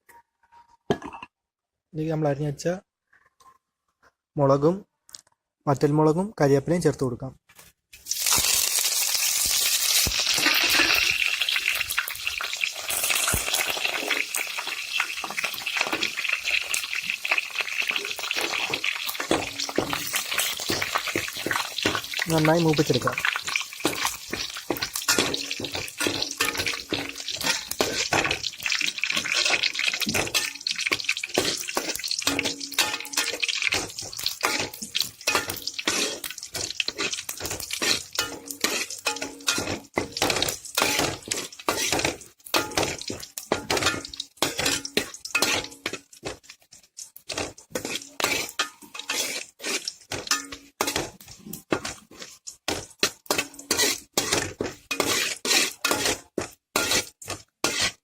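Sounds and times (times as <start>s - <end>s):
oil sizzling: 8.0s - 58.0s
metal spoon scraping in a pan: 8.2s - 58.0s.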